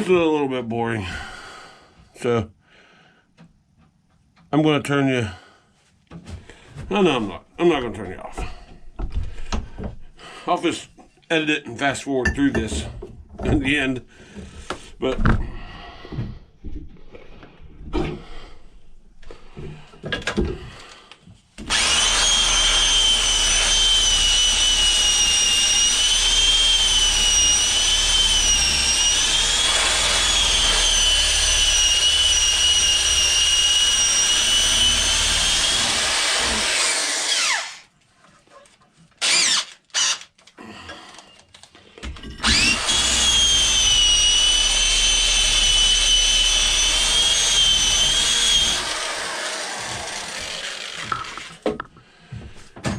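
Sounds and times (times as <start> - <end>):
power tool high whine: 21.7 - 37.9, 39.2 - 40.2, 42.4 - 51.6.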